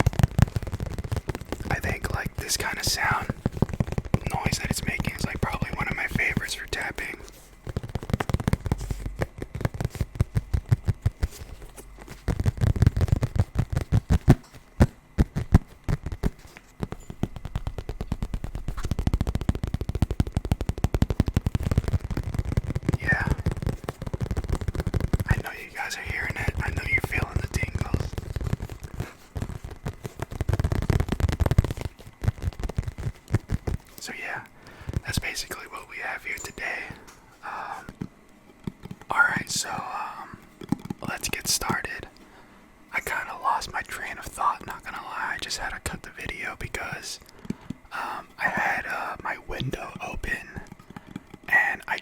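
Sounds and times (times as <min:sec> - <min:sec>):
rapid tapping on a carrying case: 0:00.0 - 0:52.0.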